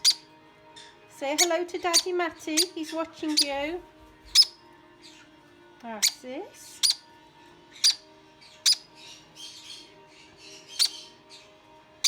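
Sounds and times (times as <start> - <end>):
soft raspy parrot calls: 0.0 - 0.2, 4.3 - 5.2, 6.0 - 7.0, 7.7 - 9.8, 10.5 - 11.4
parrots squawking: 0.0 - 5.3, 6.0 - 7.0, 7.7 - 11.4.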